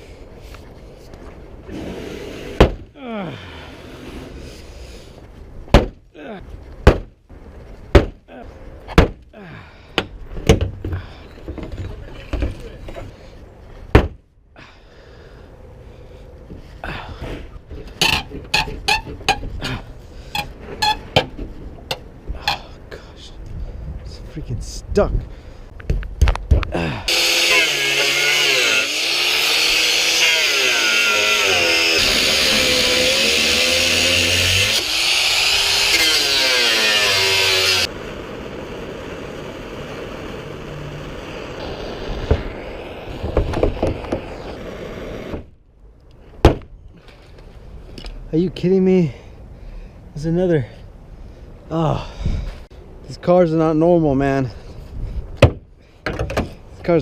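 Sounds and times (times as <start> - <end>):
knocks and clanks: 17.8 - 19.8
power tool motor cutting: 27.1 - 37.9.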